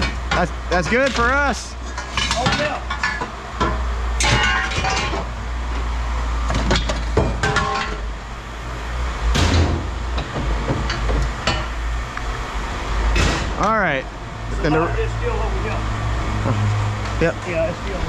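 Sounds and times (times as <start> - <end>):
scrap metal clanking: 0.0 - 5.3, 6.6 - 8.1.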